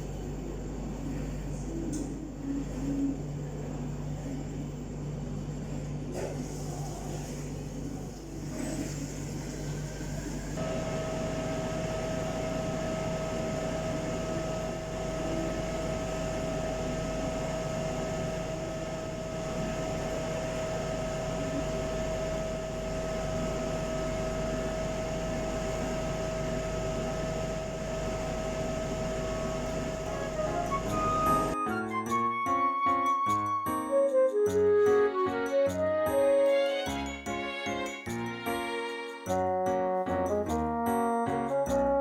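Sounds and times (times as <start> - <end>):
microwave oven humming: 0.0 - 32.4.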